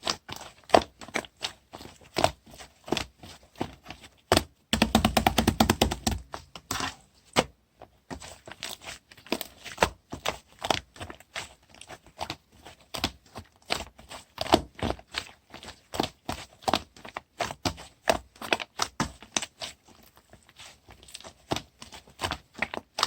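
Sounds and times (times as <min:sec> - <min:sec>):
hands squishing slime: 0:00.0 - 0:23.0.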